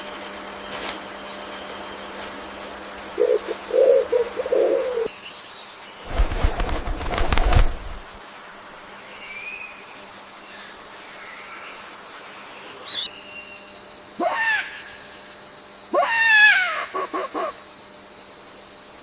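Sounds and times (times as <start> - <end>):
loud rustling burst: 6.0 - 8.2.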